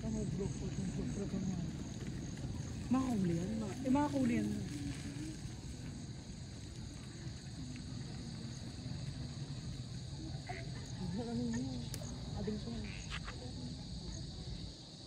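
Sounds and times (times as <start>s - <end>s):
crickets trilling: 0.0s - 15.0s
faint voices: 0.0s - 15.0s
low outdoor rumble: 0.0s - 15.0s.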